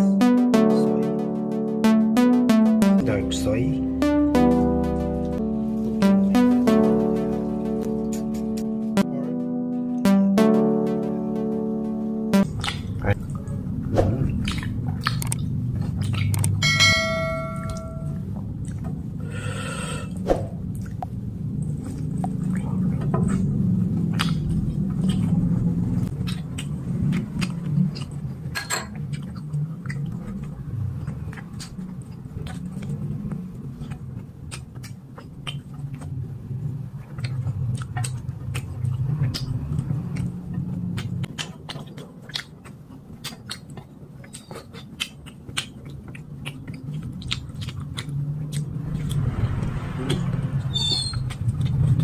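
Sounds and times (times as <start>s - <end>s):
person chewing food: 14.2s - 16.6s, 20.8s - 36.3s, 37.0s - 49.2s.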